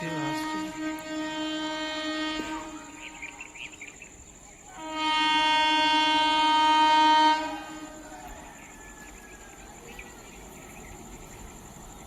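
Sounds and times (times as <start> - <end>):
locomotive horn blasts: 0.0 - 3.3, 4.8 - 8.2.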